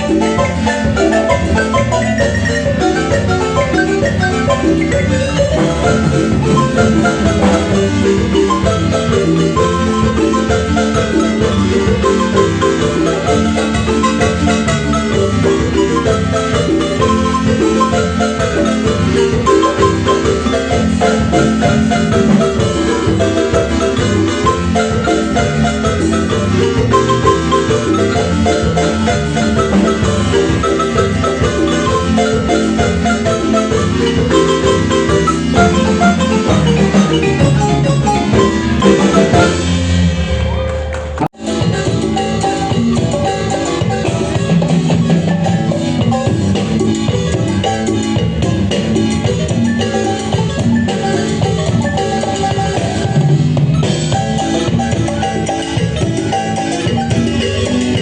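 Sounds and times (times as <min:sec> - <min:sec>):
steady drum beat: 0:00.0 - 0:40.2
marimba playing lively piece: 0:00.0 - 0:58.0.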